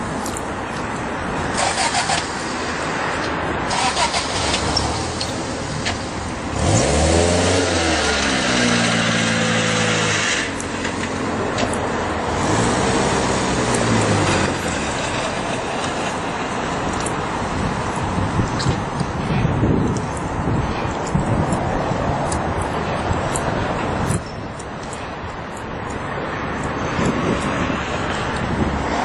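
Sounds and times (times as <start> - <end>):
car engine revving: 3.7 - 16.6.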